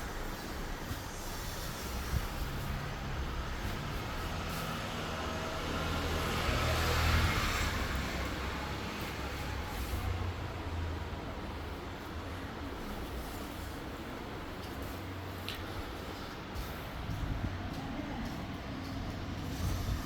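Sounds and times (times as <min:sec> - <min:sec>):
vehicle passing: 0:02.0 - 0:11.0.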